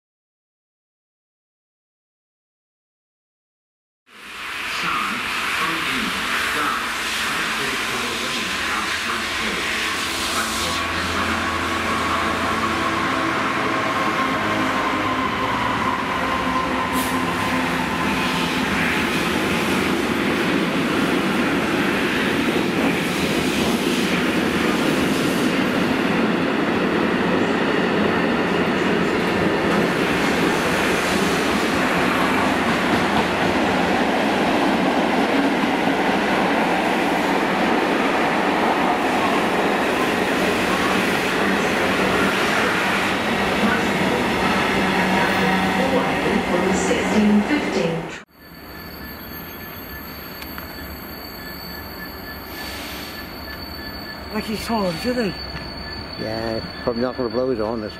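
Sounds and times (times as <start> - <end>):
diesel locomotive engine: 4.2 - 57.9
train wheels rumbling and clattering: 16.1 - 48.1.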